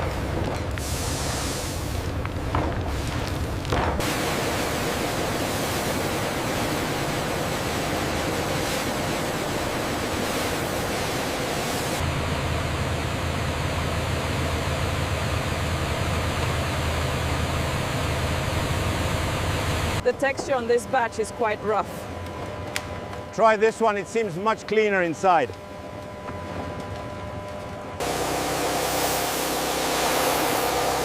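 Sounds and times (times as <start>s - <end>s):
factory rushing hiss: 0.8s - 2.1s, 28.0s - 31.0s.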